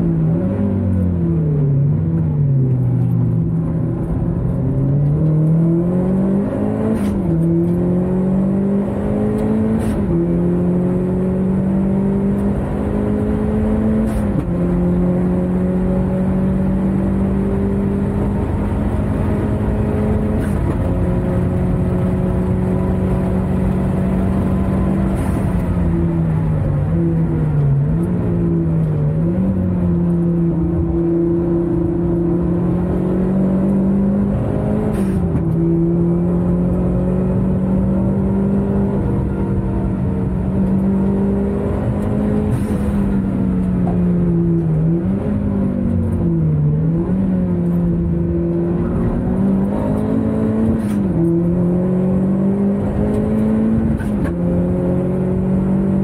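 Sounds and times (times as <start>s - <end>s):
race car engine revving: 4.7s - 56.0s.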